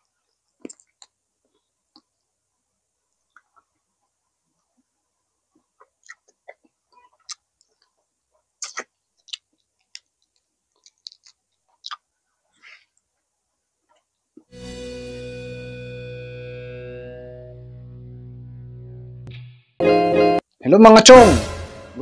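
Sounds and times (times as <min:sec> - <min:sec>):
person chewing with mouth clicks: 0:00.5 - 0:02.1, 0:05.6 - 0:08.0, 0:08.6 - 0:12.0.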